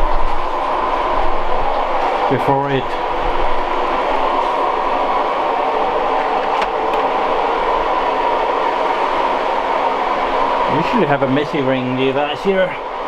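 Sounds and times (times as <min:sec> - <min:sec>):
electric water pump running: 0:03.0 - 0:08.5.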